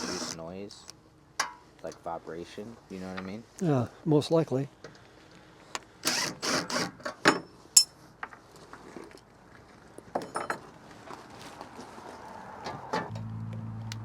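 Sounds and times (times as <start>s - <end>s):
metallic clinks and knocks: 10.2s - 10.7s.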